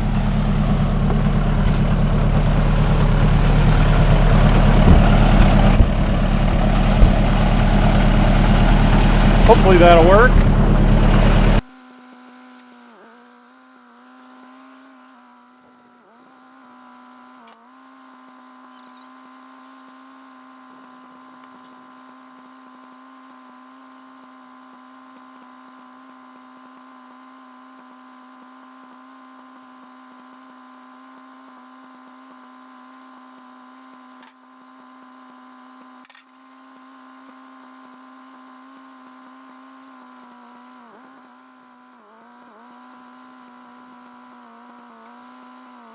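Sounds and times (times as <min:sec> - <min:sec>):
engine humming drone: 0:00.0 - 0:20.6
soft knocks: 0:04.8 - 0:07.5.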